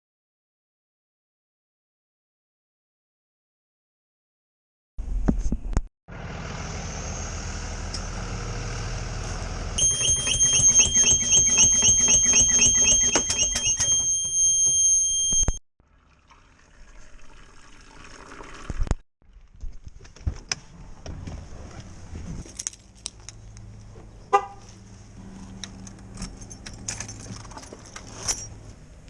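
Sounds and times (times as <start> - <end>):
electronic alarm beeping: 9.8 - 15.6.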